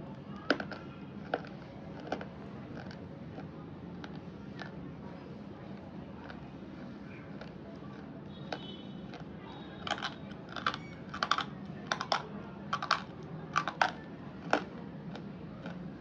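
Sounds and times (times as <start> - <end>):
crunching of brittle pieces bitten: 7.3 - 12.2, 12.8 - 15.8.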